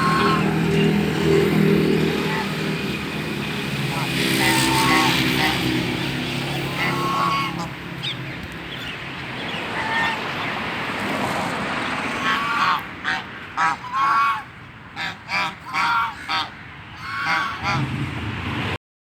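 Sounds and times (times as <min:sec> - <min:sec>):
waterfowl calling: 0:00.0 - 0:03.2, 0:03.8 - 0:10.7, 0:12.0 - 0:17.9.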